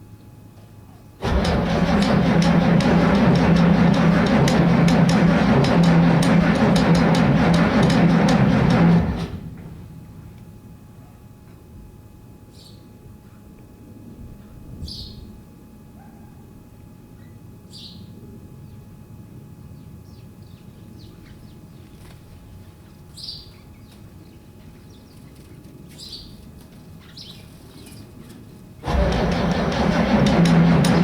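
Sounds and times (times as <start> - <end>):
starter cranking diesel engine: 1.2 - 9.9, 28.8 - 31.0
low steady rumble: 1.2 - 10.9, 28.8 - 31.0.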